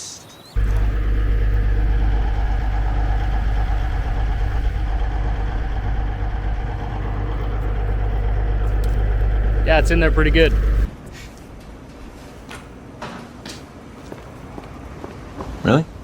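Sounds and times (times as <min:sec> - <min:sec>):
tractor diesel engine running: 0:00.6 - 0:11.0.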